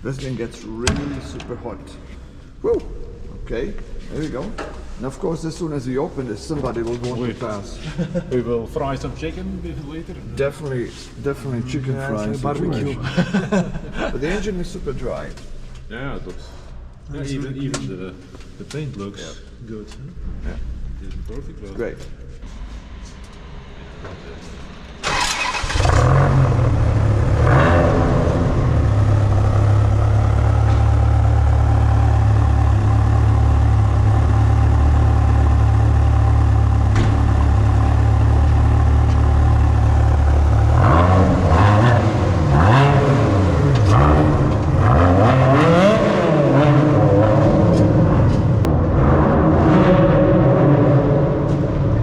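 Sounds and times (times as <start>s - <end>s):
car engine idling and revving: 23.1s - 52.0s.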